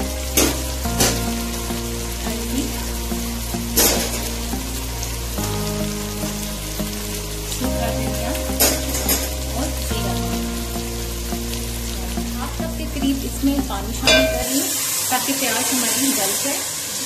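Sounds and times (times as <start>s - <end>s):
background music: 0.0s - 14.8s
chicken sizzling in hot oil: 0.0s - 17.0s.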